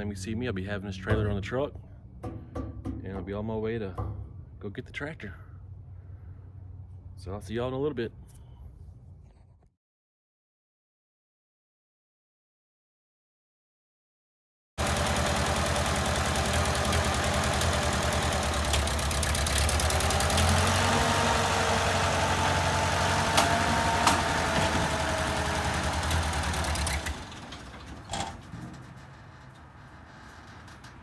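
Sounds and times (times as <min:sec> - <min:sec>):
single knock: 0:02.2 - 0:03.3
vehicle engine running: 0:14.8 - 0:31.0.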